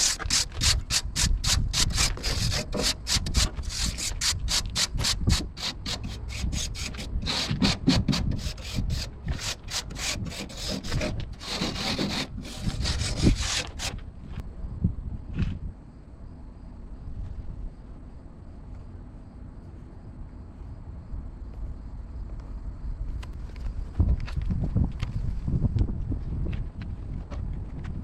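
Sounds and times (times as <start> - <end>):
abrasive tool scrubbing metal: 0.0 - 14.0.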